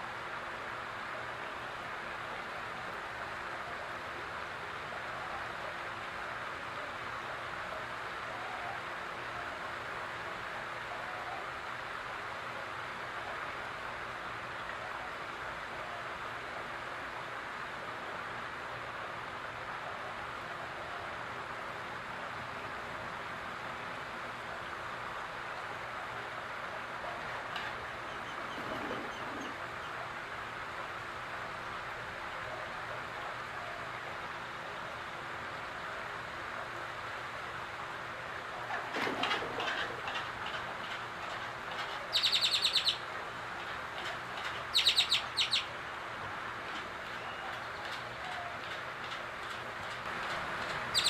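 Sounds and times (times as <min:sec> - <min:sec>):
steady hiss: 0:00.0 - 0:28.4
songbird chirping: 0:41.8 - 0:43.1, 0:44.4 - 0:45.7.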